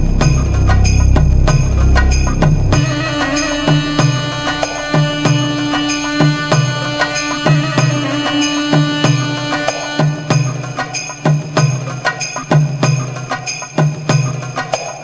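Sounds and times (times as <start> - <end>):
low pulse beat: 0.0 - 8.2
held drone: 0.0 - 10.5
sharp percussive strikes: 0.0 - 15.0
bell-like ringing tones: 0.1 - 12.4.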